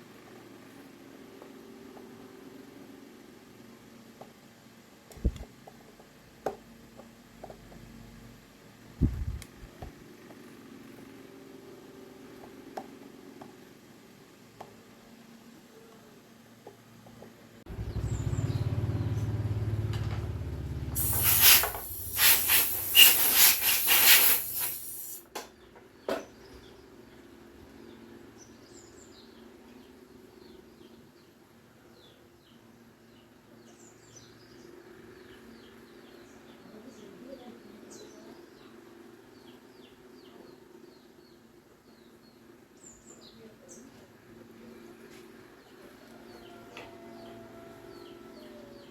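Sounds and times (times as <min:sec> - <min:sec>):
low hum: 0:17.7 - 0:22.2
birds chirping: 0:17.7 - 0:25.0
loud pulsing hiss: 0:21.0 - 0:25.2.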